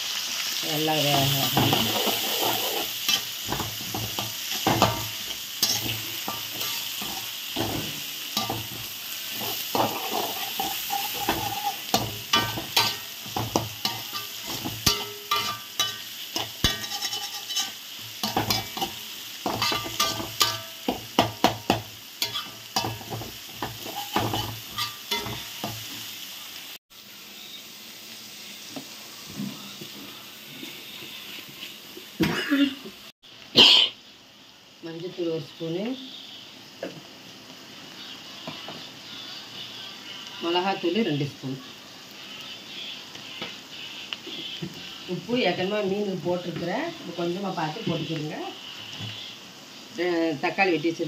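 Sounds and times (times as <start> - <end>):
vegetables sizzling in hot oil: 0.0 - 51.0
metal spatula scraping a pan: 1.1 - 25.9.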